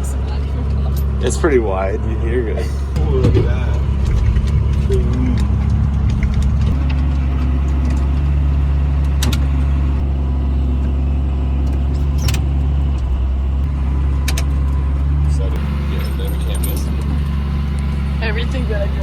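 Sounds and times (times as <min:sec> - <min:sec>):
vehicle engine humming: 0:00.0 - 0:19.0
light rattles: 0:14.2 - 0:19.0.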